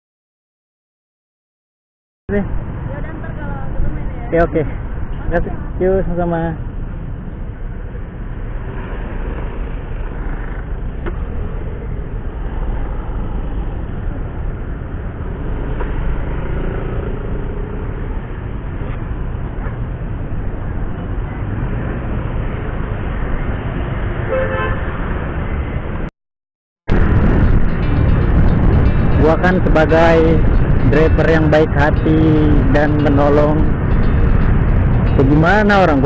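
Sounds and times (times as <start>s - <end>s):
road traffic noise: 2.3s - 26.1s, 26.9s - 36.0s
vehicle horn: 24.2s - 25.0s.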